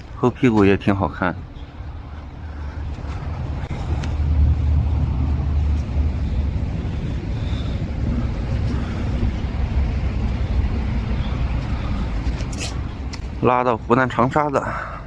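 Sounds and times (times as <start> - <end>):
low rumble of vehicle engines: 0.0 - 15.0
wind on microphone: 1.6 - 13.4.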